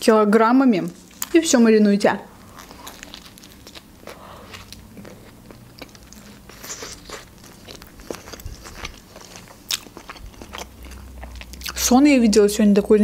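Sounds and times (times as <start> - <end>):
soft crunching while chewing: 2.3 - 11.9.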